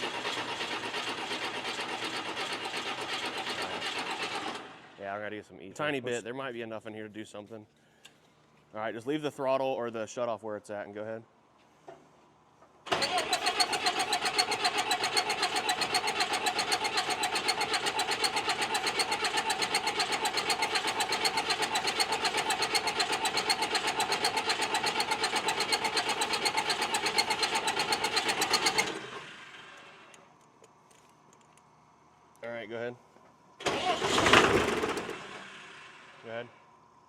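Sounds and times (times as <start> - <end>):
starter cranking diesel engine: 0.0 - 5.0, 12.9 - 30.2, 33.6 - 36.4.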